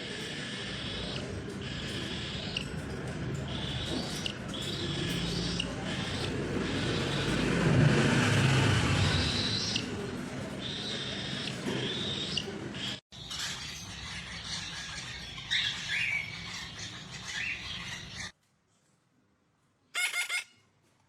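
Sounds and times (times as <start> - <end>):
parrot squawks: 0.0 - 2.8, 3.5 - 7.5, 10.6 - 18.3, 19.9 - 20.6
parrot chirping and whistling: 20.0 - 20.5.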